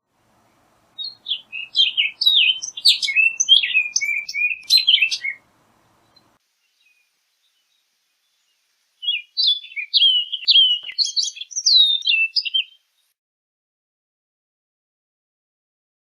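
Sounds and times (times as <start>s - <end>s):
bird singing whistled notes: 0.4s - 13.1s.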